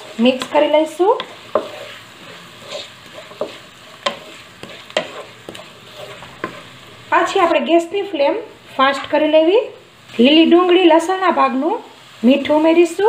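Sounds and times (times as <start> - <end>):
spatula scraping pan: 0.0 - 7.6
vegetables sizzling in oil: 0.0 - 13.0.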